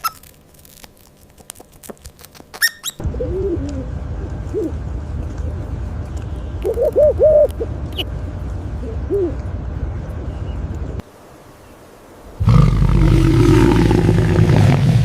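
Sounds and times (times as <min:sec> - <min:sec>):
outdoor background noise: 0:00.0 - 0:15.0
owl hooting: 0:06.6 - 0:07.6
deep drawn-out animal call: 0:12.4 - 0:15.0.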